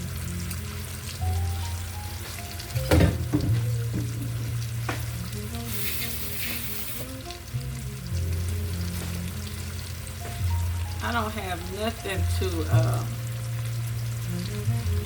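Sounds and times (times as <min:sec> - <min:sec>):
chicken sizzling in a pan: 0:00.0 - 0:15.0
utensil knocking on pan: 0:02.8 - 0:05.1.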